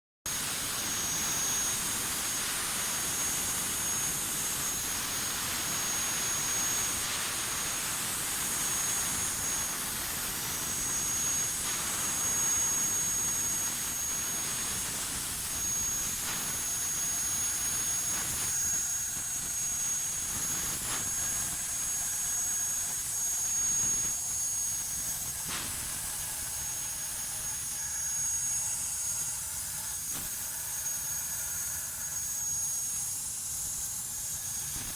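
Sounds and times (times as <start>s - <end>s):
plasma torch hissing: 0.3s - 28.6s, 29.7s - 31.1s, 32.9s - 34.9s
high steady whine: 0.3s - 34.9s.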